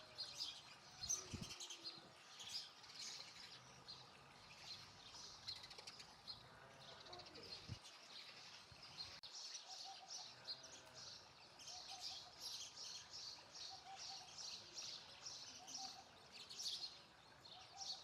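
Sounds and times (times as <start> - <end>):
sparrows chirping: 0.0 - 18.0.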